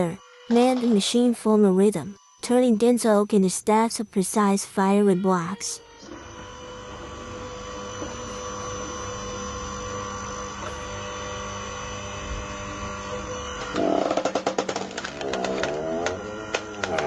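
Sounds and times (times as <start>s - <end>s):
log splitter motor humming: 5.9s - 17.0s.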